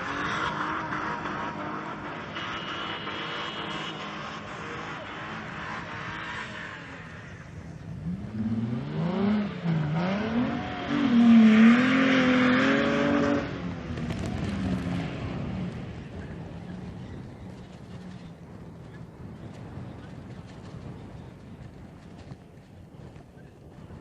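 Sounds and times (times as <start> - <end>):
off-road engine revving: 0.0 - 18.3.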